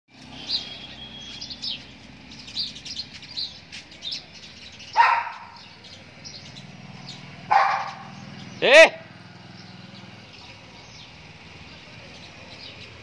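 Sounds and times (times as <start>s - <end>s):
small birds chirping: 0.1s - 13.0s
loud dog bark: 5.0s - 5.6s, 7.5s - 8.2s.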